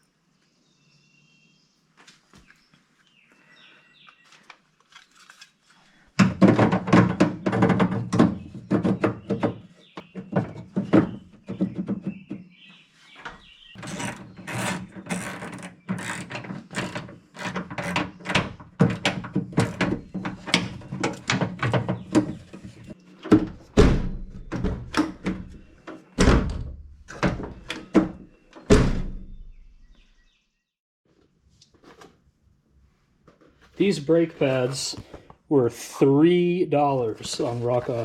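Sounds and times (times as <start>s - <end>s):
clicks and knocks of door lock mechanism: 23.2s - 29.6s.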